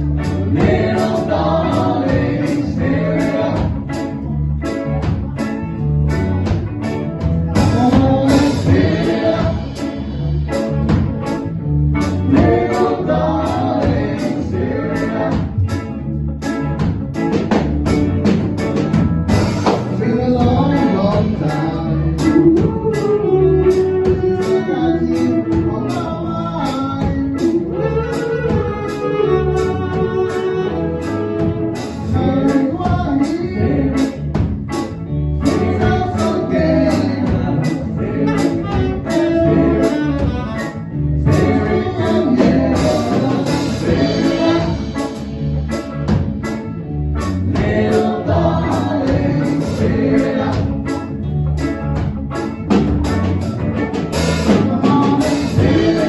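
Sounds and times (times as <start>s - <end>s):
reggae band playing: 0.0s - 56.0s
person singing: 7.6s - 10.7s, 12.2s - 15.6s, 19.7s - 34.2s, 35.4s - 45.3s, 54.4s - 56.0s
horn or saxophone lines: 27.6s - 32.7s, 38.0s - 45.5s.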